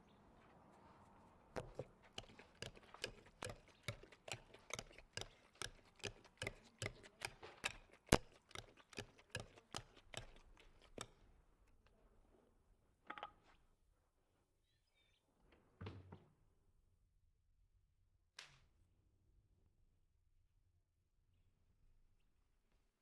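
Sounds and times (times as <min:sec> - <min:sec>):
utensil knocking on cookware: 0:01.6 - 0:11.1.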